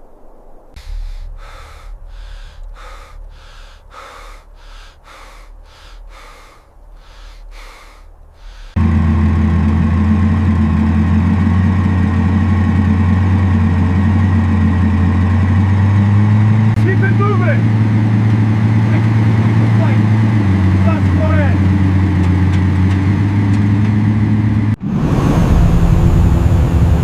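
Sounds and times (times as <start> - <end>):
low rumble: 0.0 - 13.6
loud engine drone: 0.8 - 27.0.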